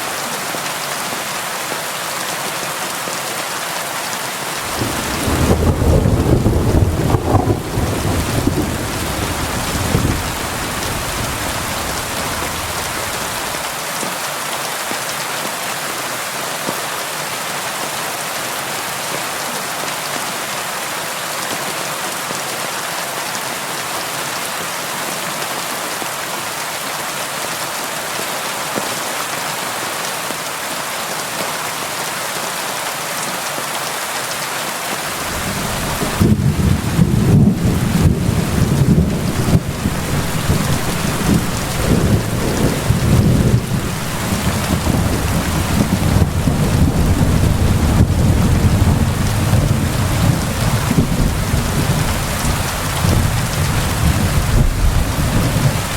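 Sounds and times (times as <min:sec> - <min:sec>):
heavy rain on window glass: 0:04.6 - 0:14.2, 0:35.0 - 0:55.9
low rumble of thunder: 0:04.7 - 0:13.6, 0:35.2 - 0:55.9.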